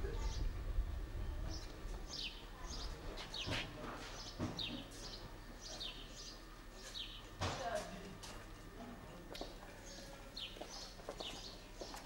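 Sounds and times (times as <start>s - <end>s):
small birds chirping: 1.4s - 7.4s, 9.4s - 12.0s.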